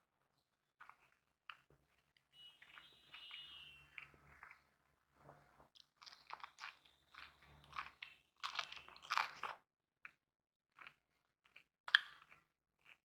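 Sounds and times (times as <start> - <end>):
person chewing and crunching food: 0.8 - 2.1, 5.7 - 13.0.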